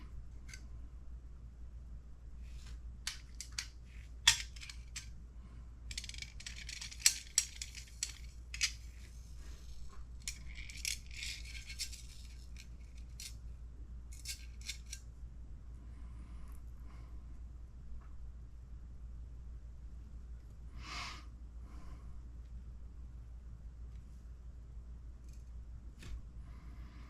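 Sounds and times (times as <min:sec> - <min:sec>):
small hard parts clicking: 0:03.1 - 0:05.1, 0:05.9 - 0:09.0, 0:10.2 - 0:13.4.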